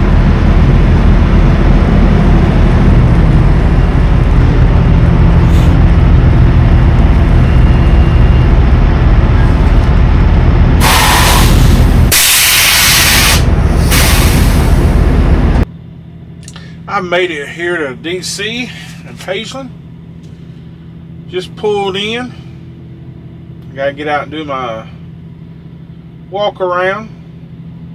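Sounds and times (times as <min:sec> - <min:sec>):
truck engine droning: 0:00.0 - 0:27.9
air brakes hissing: 0:05.4 - 0:05.9, 0:10.8 - 0:15.1, 0:18.6 - 0:19.1.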